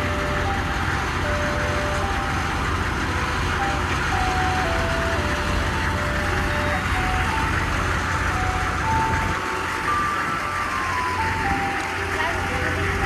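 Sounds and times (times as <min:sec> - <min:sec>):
ice cream truck jingle: 0:00.0 - 0:13.0.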